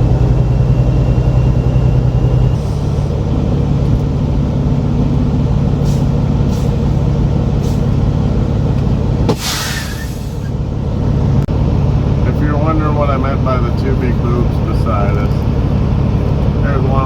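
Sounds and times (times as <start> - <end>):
diesel truck engine droning: 0.0 - 17.0
air brakes hissing: 2.5 - 3.2, 5.8 - 7.0, 7.6 - 8.0, 9.3 - 10.6.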